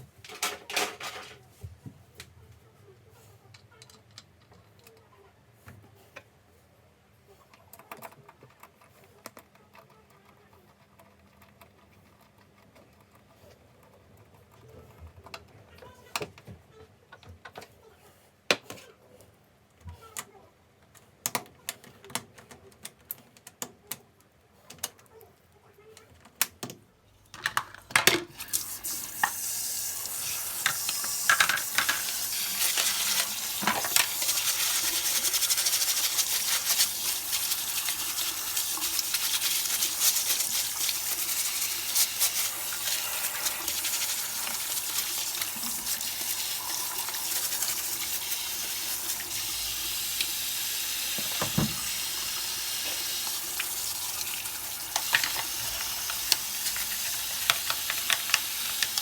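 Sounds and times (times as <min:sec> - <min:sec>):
water spraying: 0:28.4 - 0:59.0.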